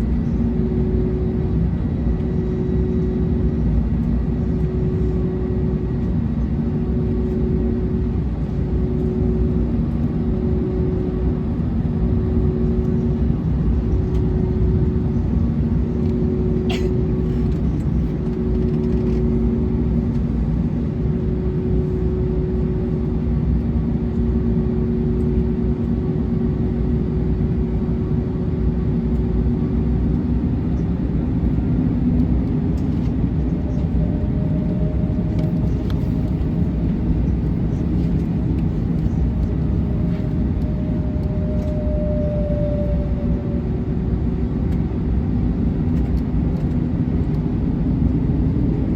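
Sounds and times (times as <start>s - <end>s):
aircraft cabin engine drone: 0.0s - 48.9s.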